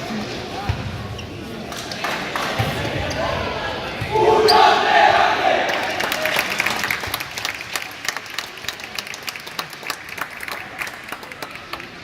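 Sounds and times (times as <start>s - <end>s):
scattered applause: 5.4s - 12.0s.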